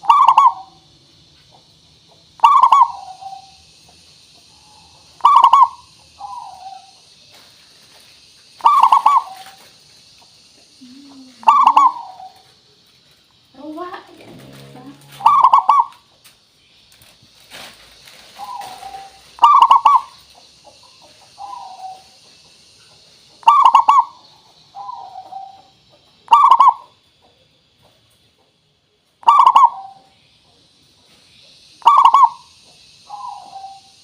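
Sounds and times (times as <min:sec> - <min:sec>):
doves cooing: 0:00.0 - 0:00.9, 0:01.6 - 0:07.0, 0:08.5 - 0:09.7, 0:10.3 - 0:12.6, 0:13.7 - 0:16.3, 0:18.2 - 0:22.4, 0:23.3 - 0:27.5, 0:29.2 - 0:30.1, 0:31.8 - 0:34.0.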